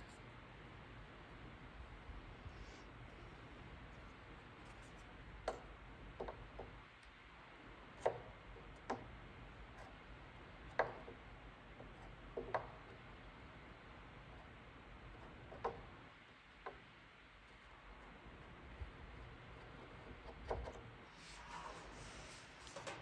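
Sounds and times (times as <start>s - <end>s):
low steady hum: 0.0s - 23.0s
light clicks and taps on plastic: 5.4s - 7.2s, 10.7s - 11.2s.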